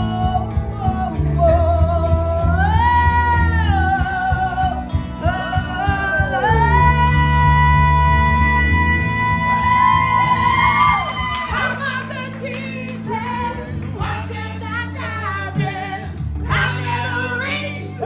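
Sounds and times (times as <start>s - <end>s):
guitar chords: 0.0s - 18.0s
person singing wordless vocal run: 11.5s - 18.0s.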